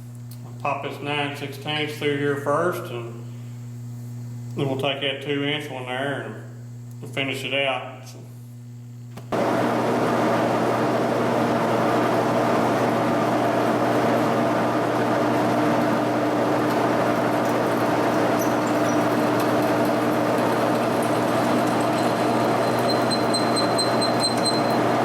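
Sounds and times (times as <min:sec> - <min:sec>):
drill motor hum and gear whine: 0:09.4 - 0:25.0
drill bit cutting through steel: 0:21.5 - 0:24.8.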